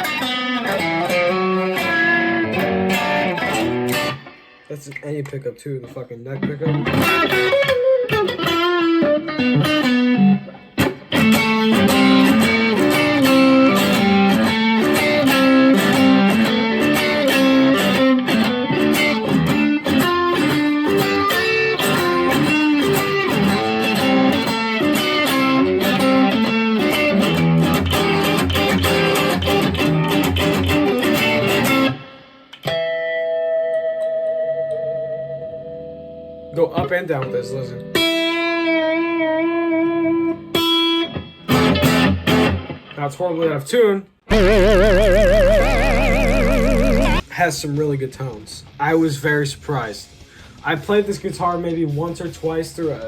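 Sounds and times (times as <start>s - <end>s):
electric guitar chord ringing: 11.2s - 36.5s, 44.3s - 47.2s
electric guitar fast single notes: 44.3s - 47.2s.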